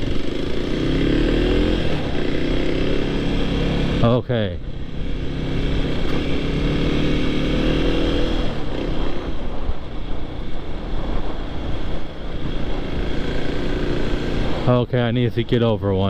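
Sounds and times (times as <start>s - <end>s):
motorcycle engine running: 0.0s - 15.1s
wind rushing over microphone: 0.0s - 16.0s.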